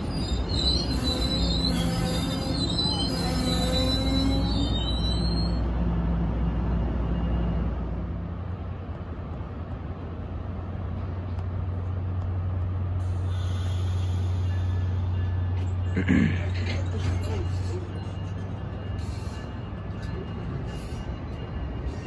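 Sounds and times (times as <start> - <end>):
train brake squeal: 0.0 - 5.7, 13.0 - 22.0
train idling hum: 0.0 - 22.0.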